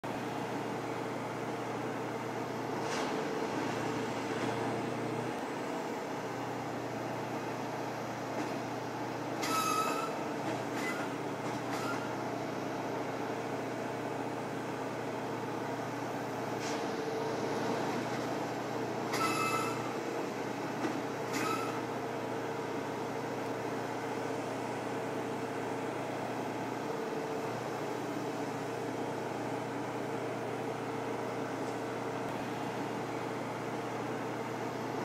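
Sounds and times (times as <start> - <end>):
train mechanical drone: 0.0 - 35.0
high-pitched squeals with hiss: 9.4 - 10.2.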